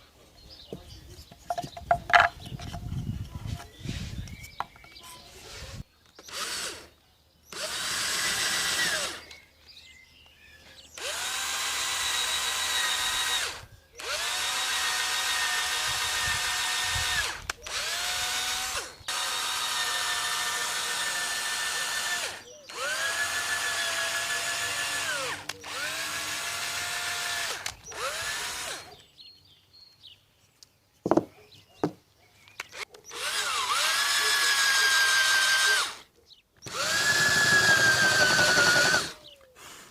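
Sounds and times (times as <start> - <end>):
electric drill whining: 5.4 - 6.9, 7.5 - 9.4, 11.0 - 29.0, 33.1 - 39.3
knocks: 31.1 - 32.0.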